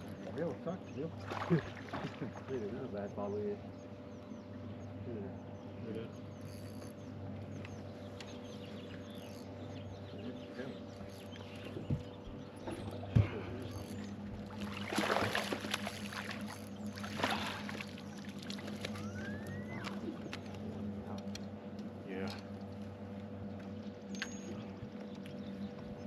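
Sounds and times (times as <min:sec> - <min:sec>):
boat motor humming: 0:00.0 - 0:26.0
water splashing: 0:01.1 - 0:02.5, 0:14.4 - 0:20.6.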